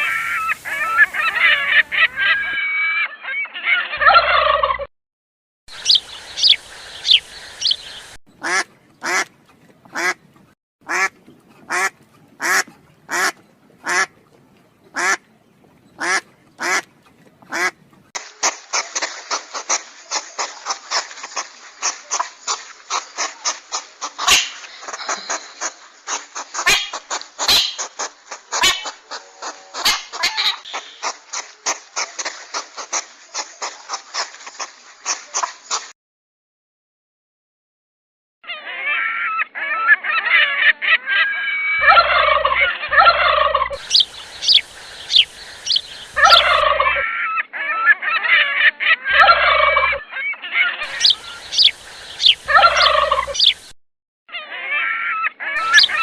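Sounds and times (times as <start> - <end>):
duck quacking: 0.0 - 4.8, 5.8 - 9.3, 9.9 - 10.2, 10.8 - 14.1, 14.9 - 15.2, 16.0 - 16.9, 17.5 - 17.8, 18.4 - 34.3, 38.5 - 53.6, 54.5 - 56.0
flock of ducks quacking: 0.0 - 4.8, 5.7 - 14.2, 14.9 - 15.3, 16.0 - 35.9, 38.5 - 53.8, 54.5 - 56.0.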